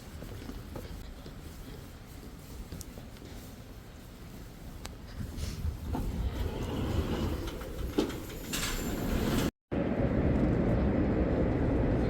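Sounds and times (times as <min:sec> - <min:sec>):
low rumble of moving vehicle: 0:05.2 - 0:12.0.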